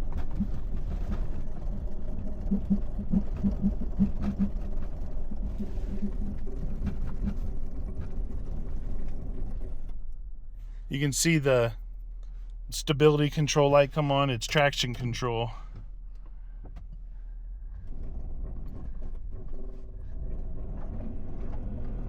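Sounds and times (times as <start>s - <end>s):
car engine under throttle: 0.0s - 9.9s
pulsing and clicking: 2.4s - 4.6s, 5.6s - 7.4s.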